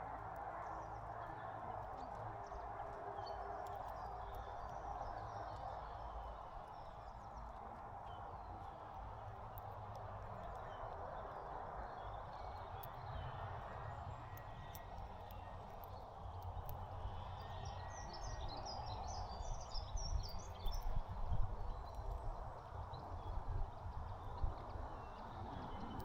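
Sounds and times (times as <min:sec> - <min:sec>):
outdoor background hum: 0:00.0 - 0:26.0
faint clicks: 0:12.3 - 0:18.3
small birds chirping: 0:15.0 - 0:26.0.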